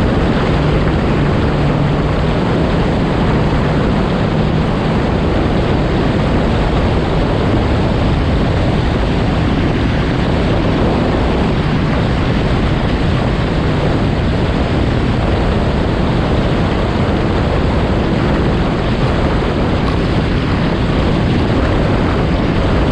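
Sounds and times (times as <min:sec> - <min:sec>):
rushing water: 0:00.0 - 0:22.9
watercraft engine: 0:00.0 - 0:22.9
wind noise on microphone: 0:00.0 - 0:22.9.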